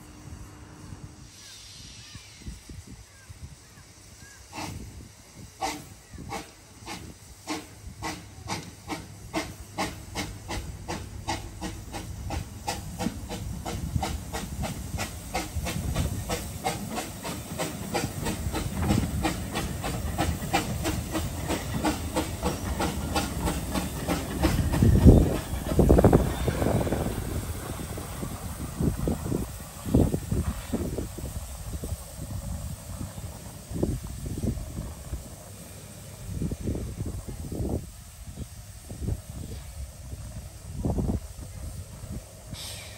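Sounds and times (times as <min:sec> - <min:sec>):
steam hissing: 0:00.0 - 0:42.9
steam locomotive chuffing: 0:00.0 - 0:42.9.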